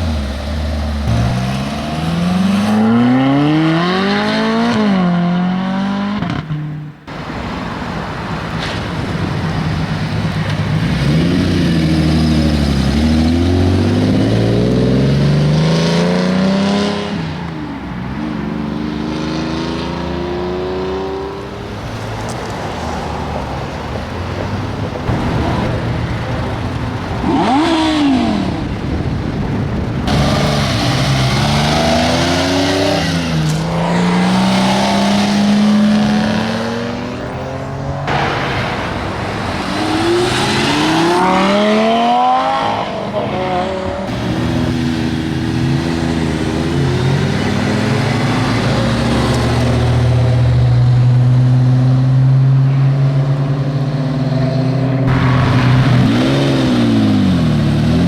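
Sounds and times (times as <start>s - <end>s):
sports car engines revving: 0.0s - 58.0s
engine low drone: 23.7s - 32.6s.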